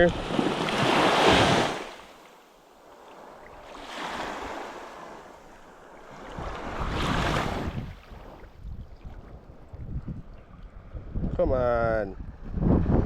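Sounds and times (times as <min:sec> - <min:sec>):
sea waves washing over rocks: 0:00.0 - 0:10.0
wind rumble on microphone: 0:06.1 - 0:13.0.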